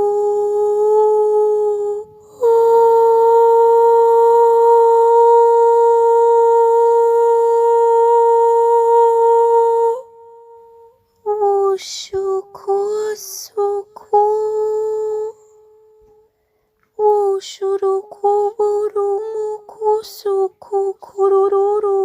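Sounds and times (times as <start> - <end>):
woman chanting syllables: 0.0 - 10.1.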